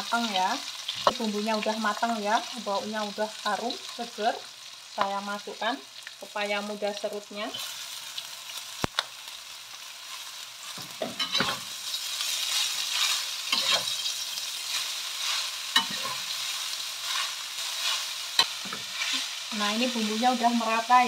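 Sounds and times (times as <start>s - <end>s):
oil sizzling in a wok: 0.0s - 21.0s
metal spatula scraping a wok: 10.1s - 19.5s.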